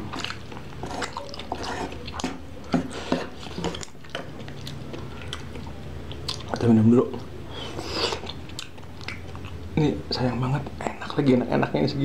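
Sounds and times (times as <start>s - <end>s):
wet chewing of noodles: 0.0s - 9.8s
lip smacks: 3.7s - 6.6s, 7.7s - 9.6s.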